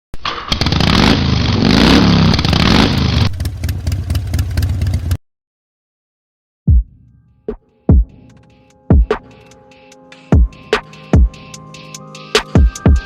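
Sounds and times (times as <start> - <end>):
motorcycle engine revving: 0.3 - 5.2.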